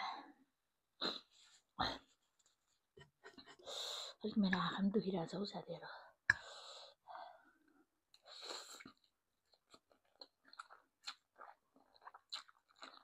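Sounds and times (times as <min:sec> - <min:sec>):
chewing food: 0:08.1 - 0:13.0.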